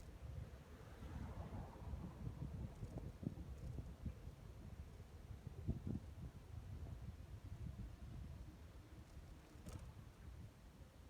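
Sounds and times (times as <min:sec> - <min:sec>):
wind buffeting microphone: 0:00.0 - 0:08.4.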